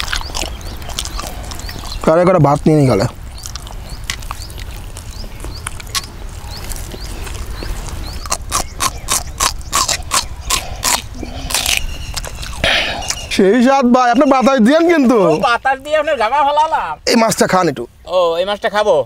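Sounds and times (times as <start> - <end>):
man chewing and lip-smacking: 0.0 - 13.4.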